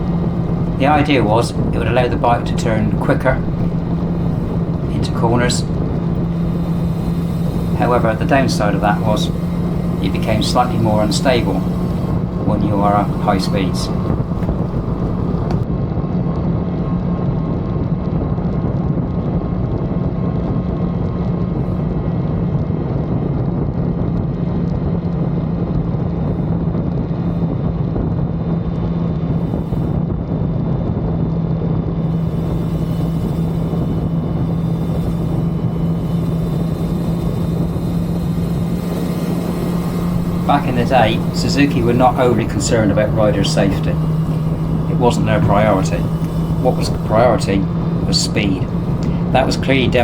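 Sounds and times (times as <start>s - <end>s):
motorcycle engine droning: 0.0s - 15.7s, 32.0s - 50.0s.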